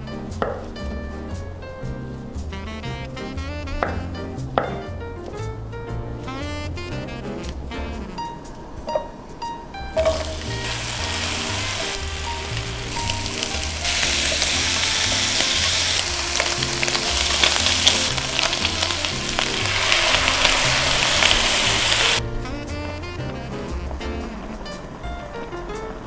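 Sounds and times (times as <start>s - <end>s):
light background music: 0.0s - 26.0s
chopsticks stirring in a pan: 10.0s - 22.2s
food sizzling in a frying pan: 10.0s - 22.2s.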